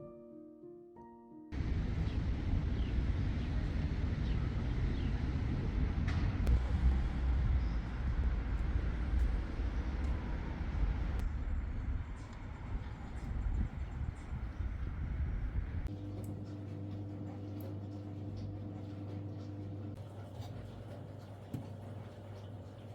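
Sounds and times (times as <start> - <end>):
low rumbling noise: 1.6 - 15.9.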